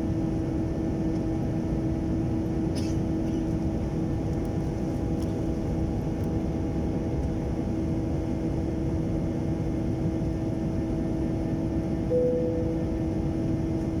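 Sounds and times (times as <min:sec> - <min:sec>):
constant hum: 0:00.0 - 0:14.0
jet engine and airflow rumble: 0:00.0 - 0:14.0
brief high tone: 0:12.1 - 0:13.0.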